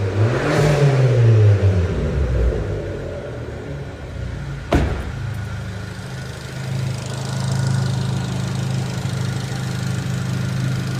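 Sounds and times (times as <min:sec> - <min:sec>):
car engine idling: 0:01.8 - 0:10.9
sharp knock: 0:04.7 - 0:05.3.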